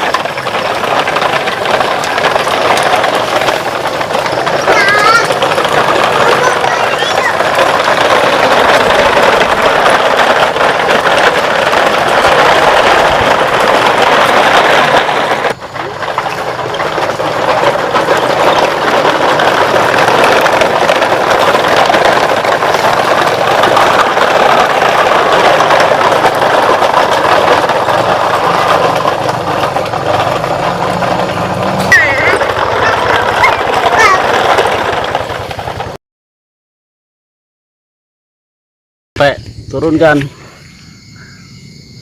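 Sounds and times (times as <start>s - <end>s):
toy truck wheels rattling: 0.0s - 36.0s.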